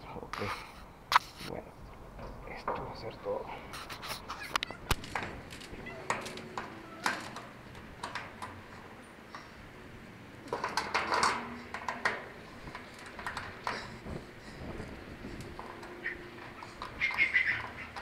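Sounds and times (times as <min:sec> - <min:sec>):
hardware clicking and knocking: 0:04.5 - 0:09.6, 0:10.4 - 0:18.0
hardware rattling: 0:04.6 - 0:18.0.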